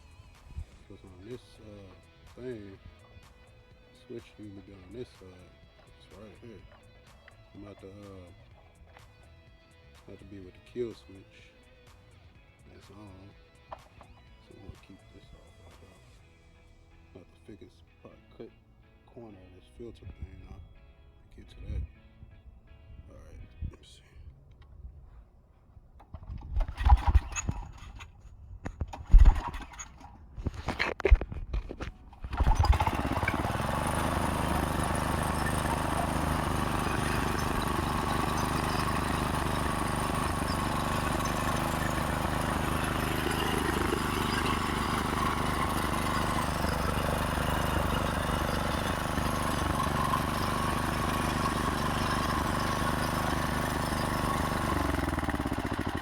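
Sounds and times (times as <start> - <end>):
small engine cranking and sputtering: 0.0 - 3.4, 4.0 - 9.2, 26.0 - 56.0
small engine idling: 0.0 - 17.3, 26.0 - 28.2, 28.9 - 30.7, 31.8 - 56.0.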